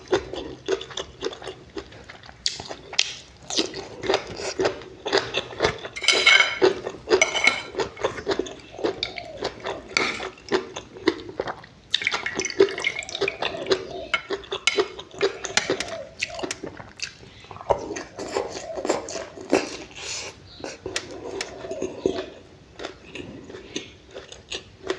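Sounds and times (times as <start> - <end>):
wet chewing and lip smacking: 0.0 - 6.0, 6.6 - 24.9
cutlery clinking on a dish: 5.9 - 8.2.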